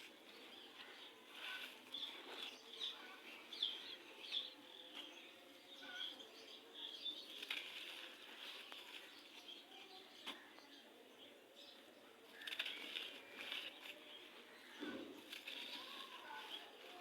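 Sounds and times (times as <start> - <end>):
sand crumbling and crunching: 12.4 - 17.0.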